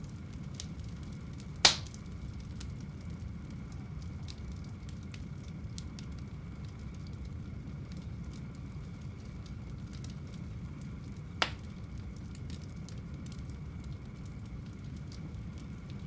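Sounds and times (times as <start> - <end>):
fire crackles: 0.0 - 16.0
fireplace flames rumbling: 0.0 - 16.0
sharp loud pop of fire: 1.6 - 2.0, 11.4 - 11.6.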